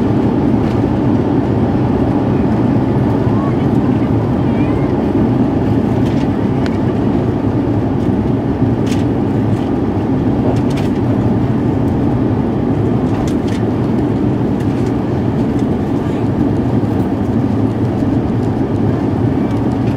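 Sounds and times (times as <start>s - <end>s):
airliner cabin rumble: 0.0s - 19.9s.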